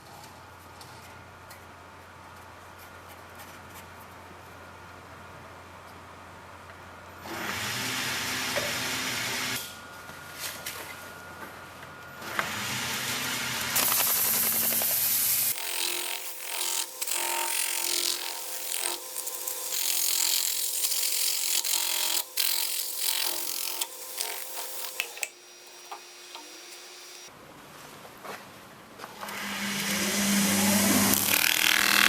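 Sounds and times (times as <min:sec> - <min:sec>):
lathe tool scraping wood: 0:15.4 - 0:27.3.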